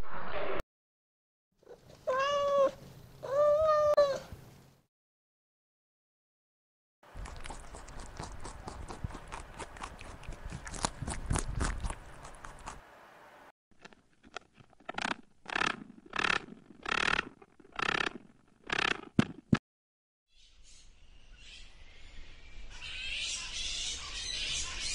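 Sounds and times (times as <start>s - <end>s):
hare chewing grass: 7.1s - 12.8s.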